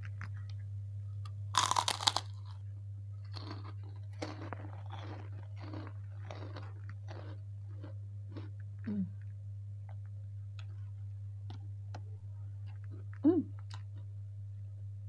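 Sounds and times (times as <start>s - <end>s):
crunchy chewing: 1.2s - 2.6s, 3.2s - 12.0s
cracker crunching bite: 1.6s - 2.6s, 3.2s - 9.3s.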